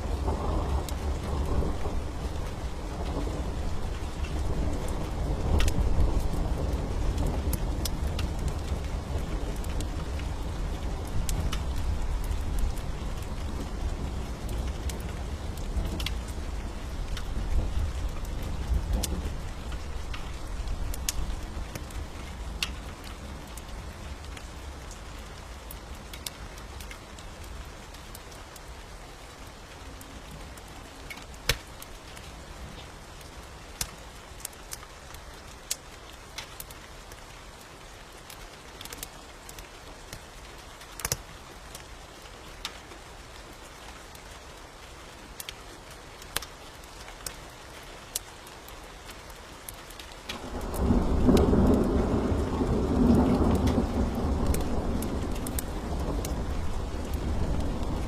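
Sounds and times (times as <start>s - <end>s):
low rumble of thunder: 0.0s - 25.2s, 50.4s - 58.0s
steady rain: 0.0s - 58.0s
wood fire crackling: 0.0s - 58.0s.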